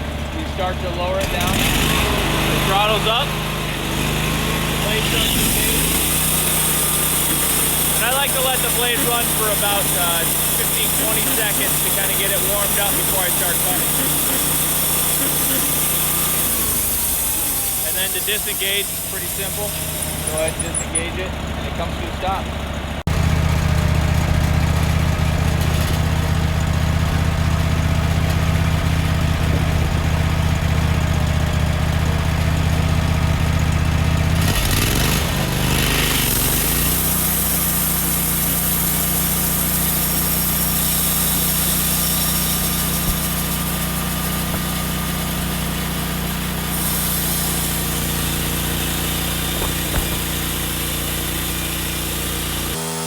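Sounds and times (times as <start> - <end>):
sawmill engine running: 0.0 - 53.0
band blade hiss: 5.3 - 21.0, 35.9 - 52.8.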